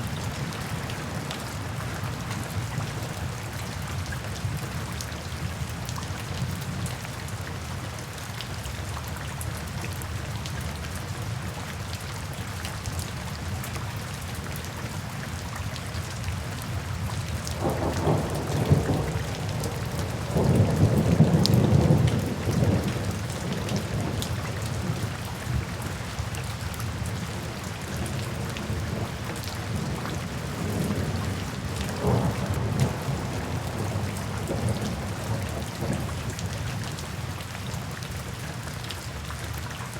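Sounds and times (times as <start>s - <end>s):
steady rain falling: 0.0s - 39.9s
thunder rumbling: 17.6s - 25.6s, 28.2s - 36.2s.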